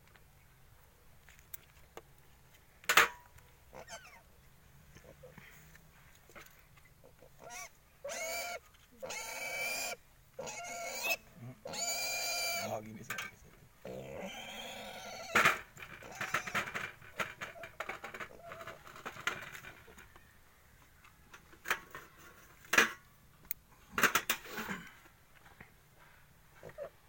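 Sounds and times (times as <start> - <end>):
pig grunting and squealing: 3.7 - 4.2, 7.0 - 12.8, 13.8 - 16.8.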